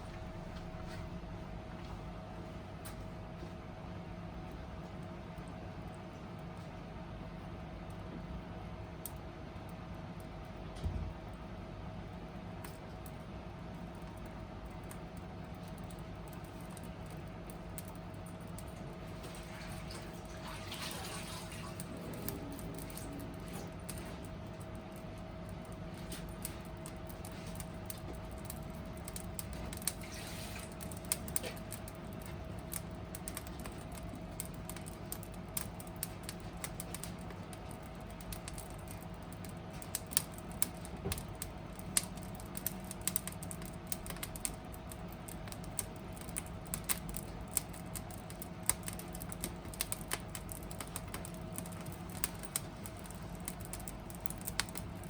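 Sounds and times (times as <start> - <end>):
faint steady hum: 0.0 - 55.0
wood fire crackling: 0.0 - 55.0.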